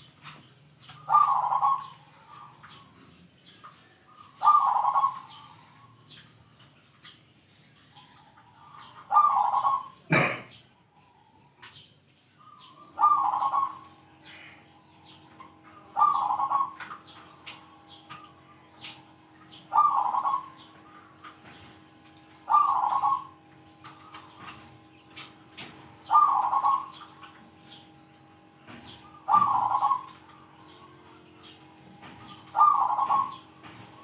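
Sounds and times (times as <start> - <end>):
low steady hum: 0.0 - 34.0
dove cooing: 0.9 - 2.8, 4.2 - 6.2, 8.0 - 10.7, 12.5 - 14.7, 15.3 - 27.8, 28.7 - 34.0.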